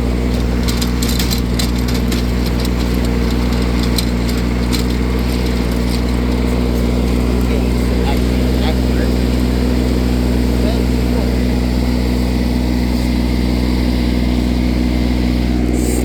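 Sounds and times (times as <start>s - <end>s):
diesel mower engine idling: 0.0s - 16.0s.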